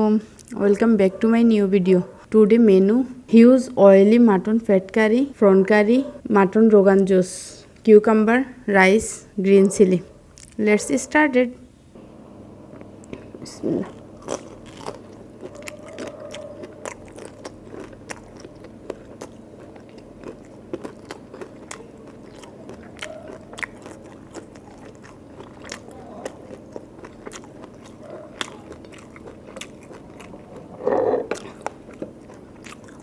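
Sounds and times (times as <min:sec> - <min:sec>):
food crunching: 0:12.7 - 0:33.0
person chewing food: 0:12.7 - 0:33.0.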